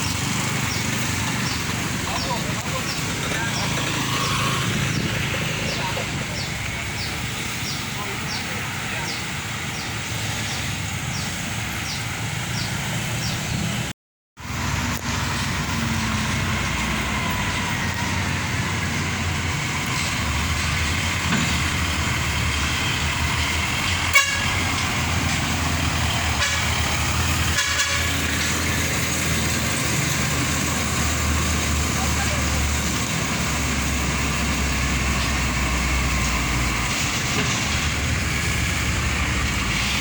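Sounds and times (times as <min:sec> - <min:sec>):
diesel truck engines running: 0:00.0 - 0:40.0
truck horn toot: 0:24.0 - 0:24.9, 0:26.2 - 0:28.6.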